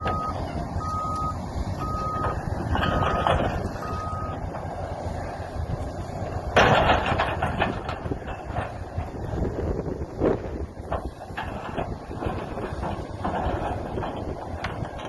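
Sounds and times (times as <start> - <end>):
backup alarm beeping: 0.0 - 4.4
machinery engine rumble: 0.0 - 15.0.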